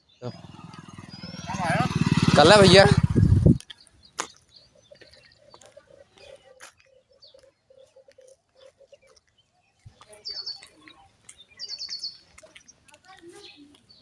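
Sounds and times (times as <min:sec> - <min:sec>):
small birds chirping: 0:00.0 - 0:14.0
low rapidly pulsing sound: 0:00.6 - 0:03.6.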